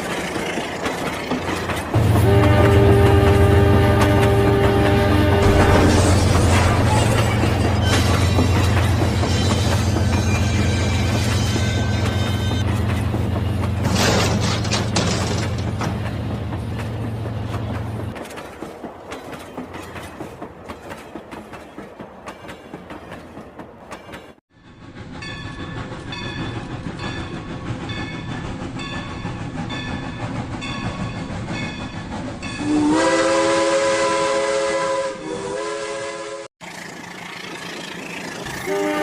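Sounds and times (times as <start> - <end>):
toy train horn blast: 2.1 - 6.2, 32.6 - 36.5, 38.6 - 39.0.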